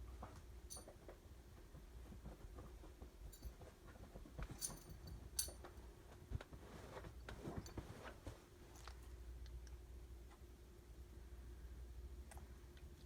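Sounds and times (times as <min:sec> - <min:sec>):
light metallic clinks: 0:00.7 - 0:01.0, 0:03.3 - 0:03.6, 0:04.5 - 0:05.7.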